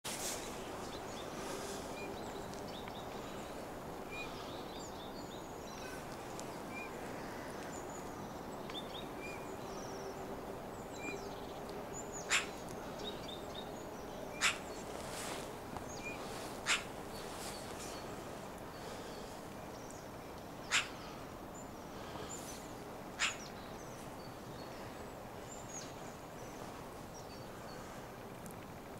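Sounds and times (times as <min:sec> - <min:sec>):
steady background noise: 0:00.1 - 0:28.9
small birds chirping: 0:00.3 - 0:28.9
loud sharp bird calls: 0:12.0 - 0:13.4, 0:14.2 - 0:15.4, 0:16.0 - 0:20.0, 0:20.6 - 0:24.0.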